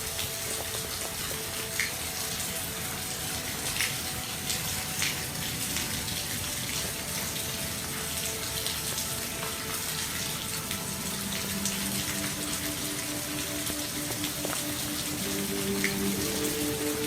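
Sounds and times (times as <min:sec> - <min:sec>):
sharp raindrops: 0:00.0 - 0:17.0
steady rain falling: 0:00.0 - 0:17.0.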